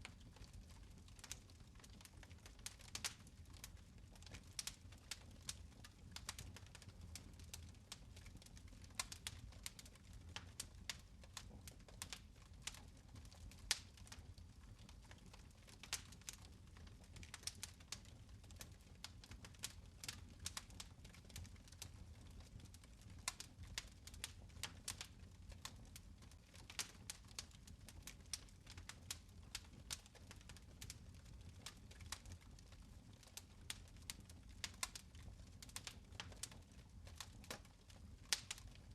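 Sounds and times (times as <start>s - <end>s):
fire crackling and popping: 0.0s - 38.9s.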